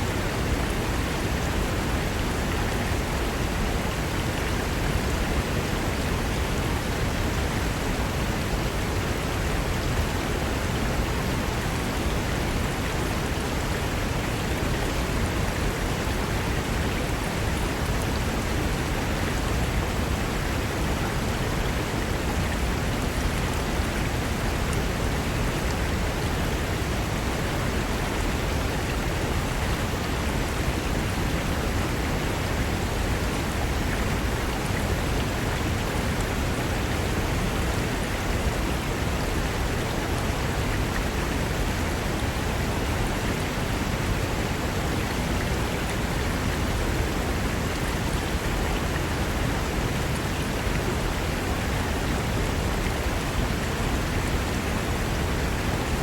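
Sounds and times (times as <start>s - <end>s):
river rushing over rocks: 0.0s - 56.0s.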